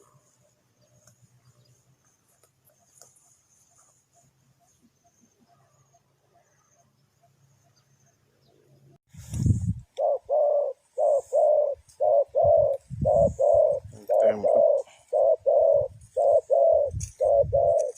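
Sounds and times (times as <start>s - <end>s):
dove cooing: 10.0s - 17.9s.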